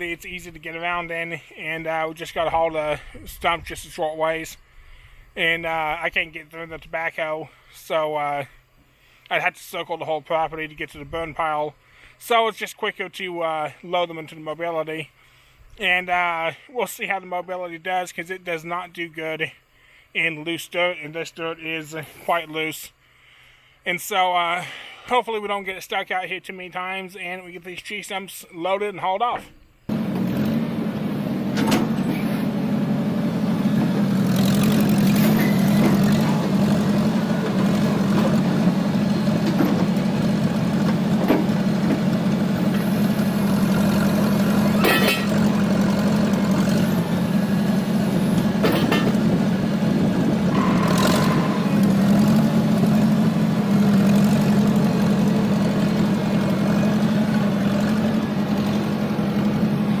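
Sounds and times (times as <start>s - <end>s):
loader engine running: 0.0s - 4.4s, 29.9s - 60.0s
metal knocks and clanks: 50.5s - 53.4s.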